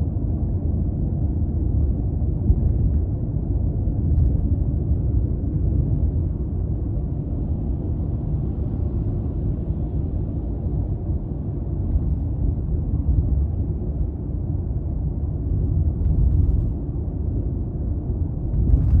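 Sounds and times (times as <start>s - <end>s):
tyre and road noise: 18.4s - 19.0s.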